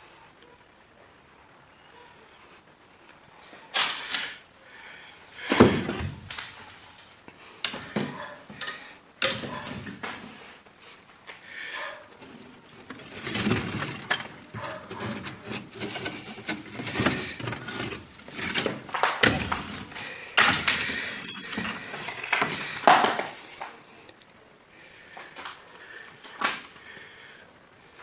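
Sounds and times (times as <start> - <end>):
knocks on masonry: 5.4 - 6.3, 18.4 - 21.0
bricks scraping and clinking: 12.2 - 23.7.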